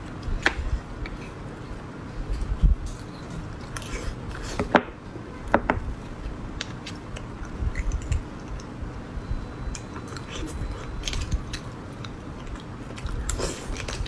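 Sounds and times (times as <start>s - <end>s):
chewing with wet smacks: 9.7s - 14.0s.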